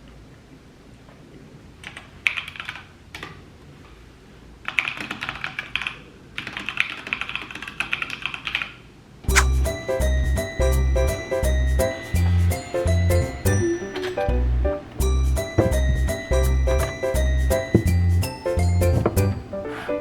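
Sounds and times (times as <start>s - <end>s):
music with steady beat: 9.3s - 19.4s.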